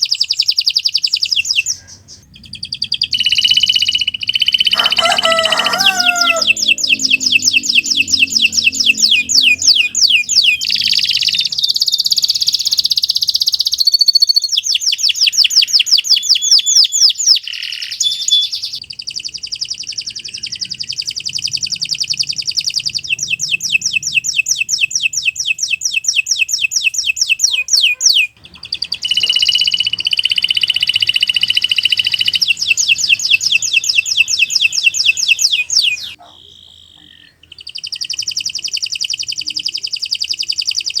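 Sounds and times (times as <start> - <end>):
canary singing trills: 0.0 - 41.0.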